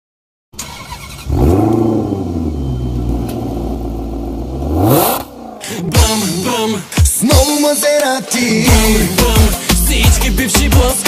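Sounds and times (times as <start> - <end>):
car engine revving: 0.6 - 6.7.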